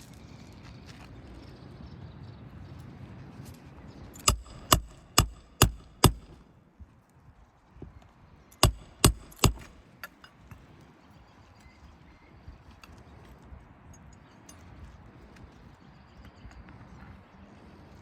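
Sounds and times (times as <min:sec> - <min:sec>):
hammer striking roofing nails: 0:04.2 - 0:06.4, 0:08.6 - 0:09.8.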